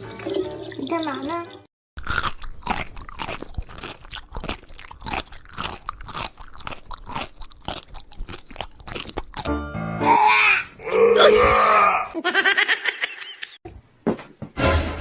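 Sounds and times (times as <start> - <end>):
crunchy chewing: 2.0 - 9.5.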